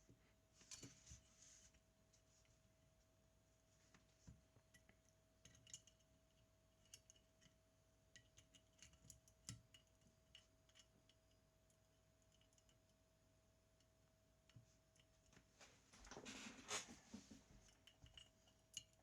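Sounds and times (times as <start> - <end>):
faint steady hum: 0.0 - 19.0
small metallic clicks and taps: 4.6 - 13.0.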